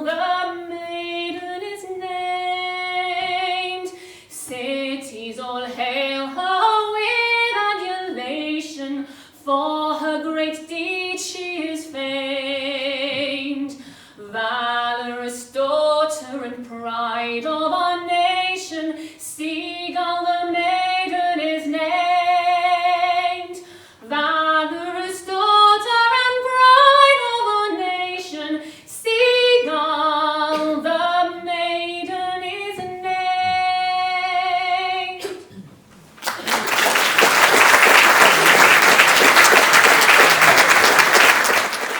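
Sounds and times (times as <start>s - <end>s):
woman singing unaccompanied: 0.0s - 35.4s
audience applause: 36.2s - 41.9s.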